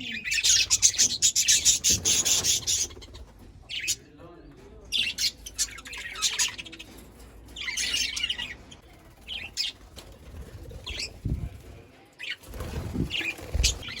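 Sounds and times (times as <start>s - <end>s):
budgerigars chirping: 0.0s - 3.1s
wings flapping: 8.3s - 14.0s.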